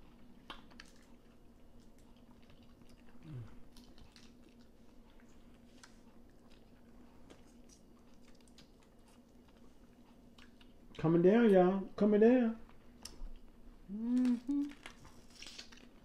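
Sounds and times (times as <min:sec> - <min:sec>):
person chewing food: 0:00.0 - 0:11.0, 0:12.7 - 0:16.0
low humming voice: 0:03.2 - 0:03.6, 0:13.9 - 0:14.9.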